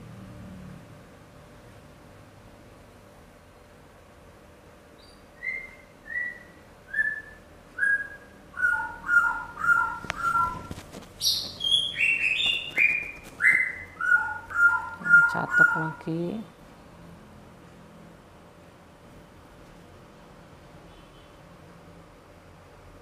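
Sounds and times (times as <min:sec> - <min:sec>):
bird whistled chirps: 0:05.0 - 0:15.9.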